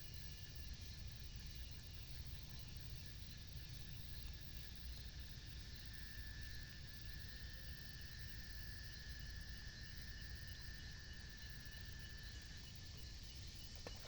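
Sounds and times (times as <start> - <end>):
faint insect chirping: 0.1 - 14.0
insects droning: 4.8 - 14.0.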